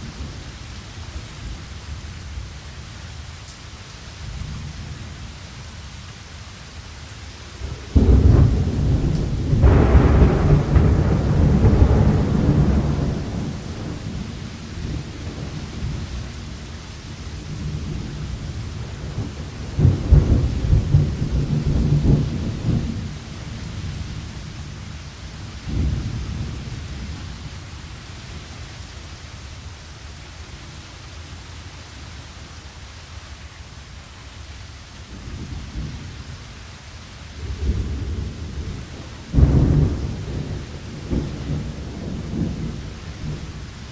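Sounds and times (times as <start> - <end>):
steady rain: 0.0 - 43.9
rolling thunder: 7.9 - 16.7, 17.4 - 24.8, 25.6 - 27.6, 37.4 - 43.9
thunder crack: 8.0 - 14.2.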